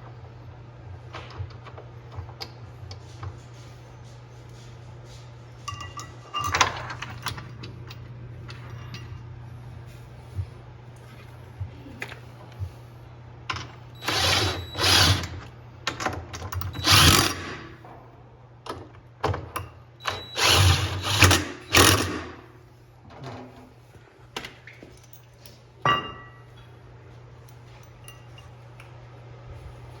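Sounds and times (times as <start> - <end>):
drill-driver driving screws: 14.0 - 15.4, 16.7 - 17.6, 20.1 - 22.3.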